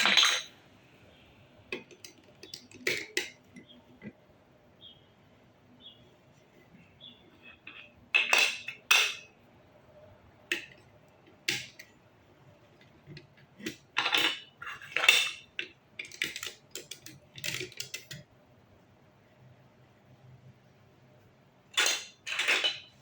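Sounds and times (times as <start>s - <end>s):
plastic blocks clicking and clattering: 1.7s - 3.6s, 13.1s - 18.2s, 21.8s - 22.9s.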